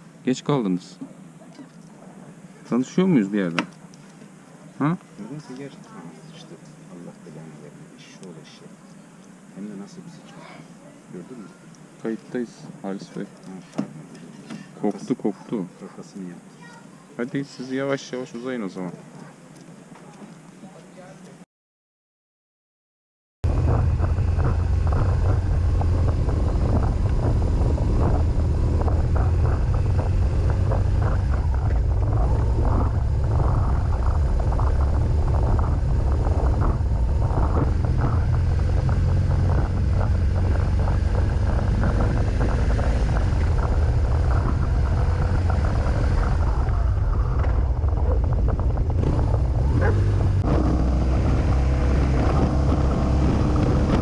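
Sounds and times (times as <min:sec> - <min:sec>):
motorcycle engine rumble: 0:23.4 - 0:54.0
wind buffeting microphone: 0:23.4 - 0:54.0.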